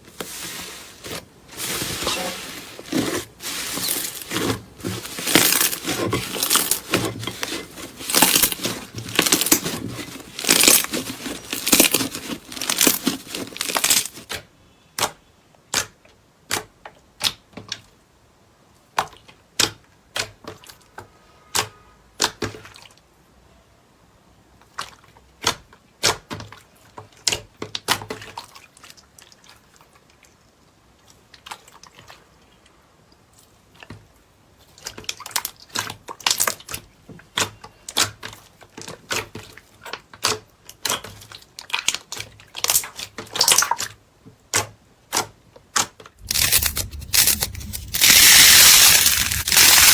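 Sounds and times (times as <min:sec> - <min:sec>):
slime crackling and popping: 0:02.1 - 0:14.3, 0:46.2 - 0:49.9.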